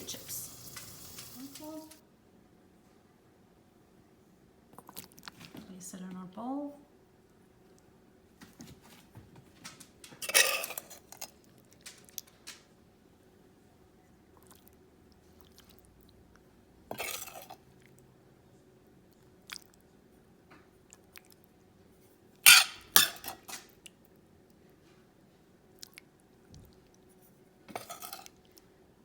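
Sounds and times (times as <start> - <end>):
spoon scraping a pot: 16.9 - 17.6, 22.5 - 23.5, 27.7 - 28.3.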